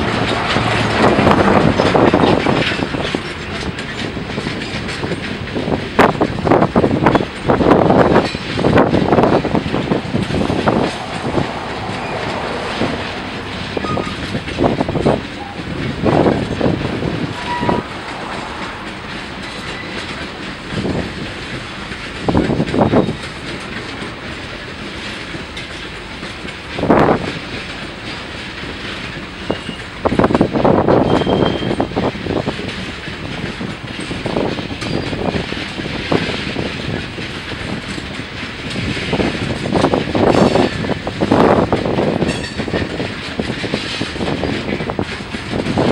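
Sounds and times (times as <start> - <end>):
train rumble: 0.0 - 45.9
train wheels clanking on rail joints: 0.0 - 45.9.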